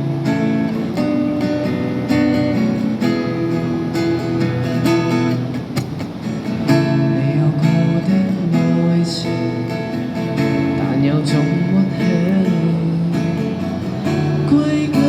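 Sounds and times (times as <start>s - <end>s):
acoustic guitar strumming chords: 0.0s - 15.0s
person singing pop song: 6.8s - 15.0s.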